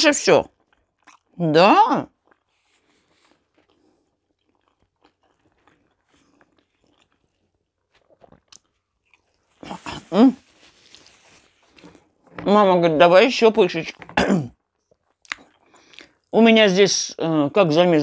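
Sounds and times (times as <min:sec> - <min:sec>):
person chewing food: 0:00.4 - 0:01.4, 0:02.1 - 0:12.4, 0:14.0 - 0:16.4
bite sounds: 0:03.5 - 0:11.2.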